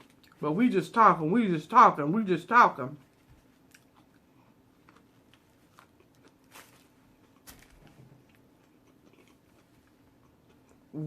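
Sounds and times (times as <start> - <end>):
faint chewing of a sandwich: 0.0 - 0.4, 3.0 - 11.0.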